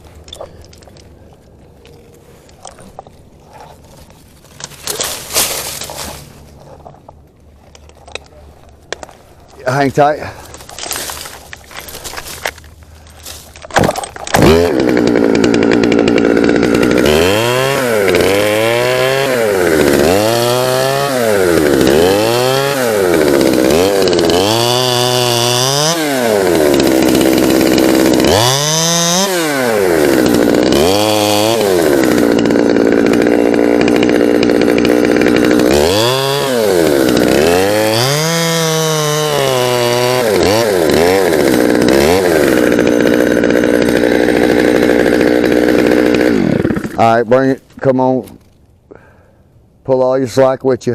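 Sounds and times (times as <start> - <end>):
chainsaw revving and idling: 10.7 - 47.6.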